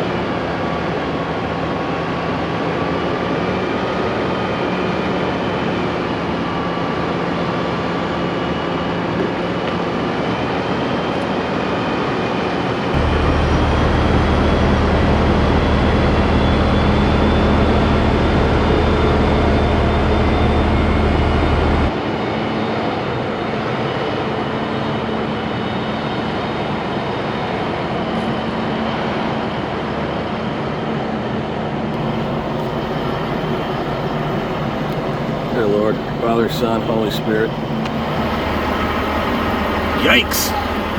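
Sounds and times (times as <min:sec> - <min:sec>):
deep low rumble: 0:13.0 - 0:21.9, 0:32.0 - 0:40.9
heavy diesel engine running: 0:13.0 - 0:21.9, 0:32.0 - 0:40.9.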